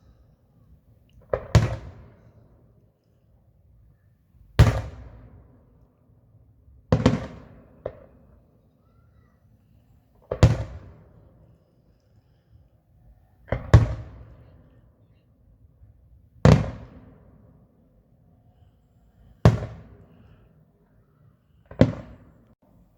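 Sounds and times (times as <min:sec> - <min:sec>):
fireworks bursting with loud bangs: 0:06.9 - 0:08.2, 0:10.2 - 0:11.1, 0:16.4 - 0:17.3, 0:19.4 - 0:20.2, 0:21.7 - 0:22.5.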